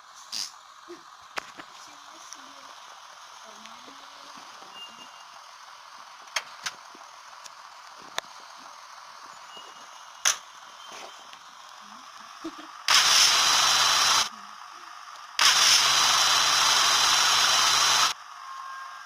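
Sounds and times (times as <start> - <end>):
loud even hiss: 12.9 - 14.3.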